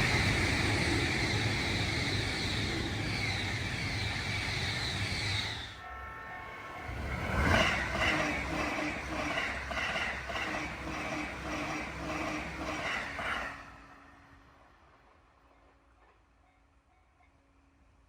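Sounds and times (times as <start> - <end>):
electric train hum: 0.0 - 18.0
train wheels clacking over joints: 7.2 - 13.8.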